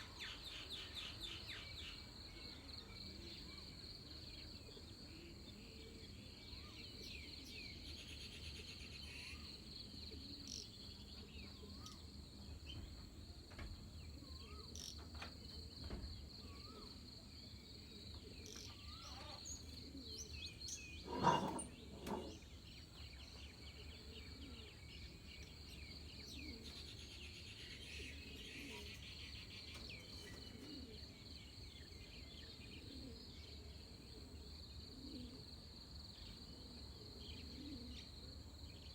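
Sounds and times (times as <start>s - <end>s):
animal call: 18.8s - 19.5s, 21.0s - 22.4s.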